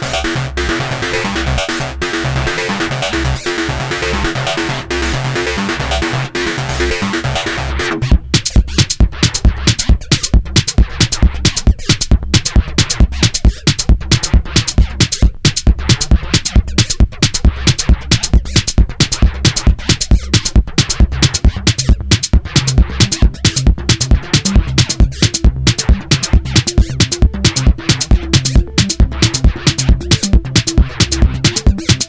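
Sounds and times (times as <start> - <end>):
drum machine pulse: 0.0 - 32.0
sequenced synth pattern: 0.0 - 32.0
synth bass line: 21.0 - 32.0.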